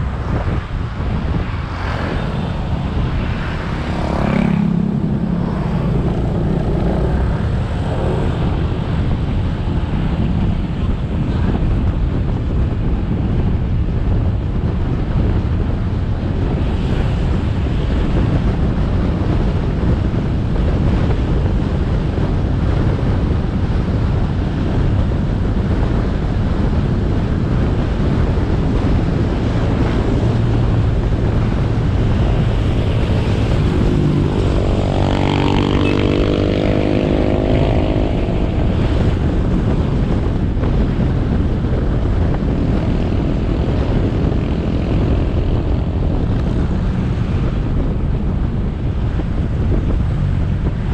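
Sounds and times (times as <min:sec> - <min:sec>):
motorcycle engine: 0:00.0 - 0:12.6, 0:26.8 - 0:50.9
wind buffeting microphone: 0:00.0 - 0:50.9.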